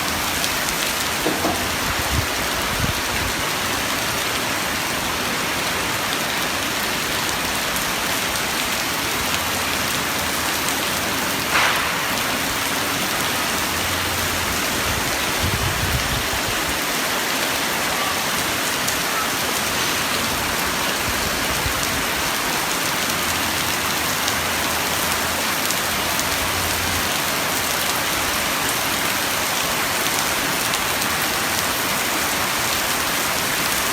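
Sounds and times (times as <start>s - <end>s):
sharp knock: 1.2s - 1.7s, 11.5s - 12.6s.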